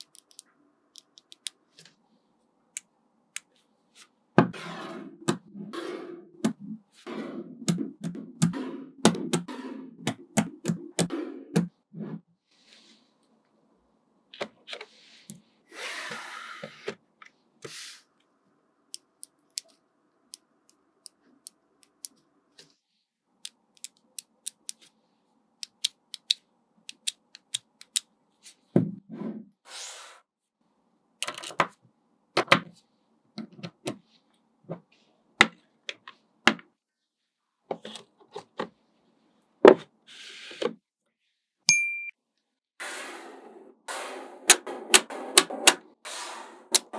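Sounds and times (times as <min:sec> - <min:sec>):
magnetic balls clicking together: 0:00.0 - 0:01.5, 0:10.1 - 0:11.7, 0:25.6 - 0:28.0.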